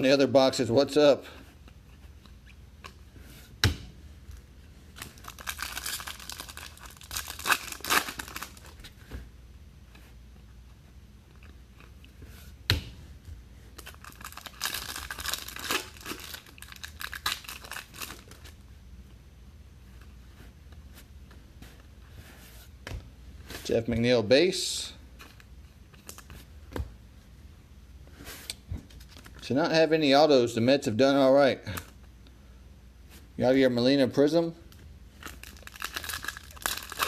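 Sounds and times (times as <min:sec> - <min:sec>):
foil wrapper tearing and crinkling: 0:05.0 - 0:08.8, 0:13.8 - 0:18.5, 0:35.2 - 0:37.0.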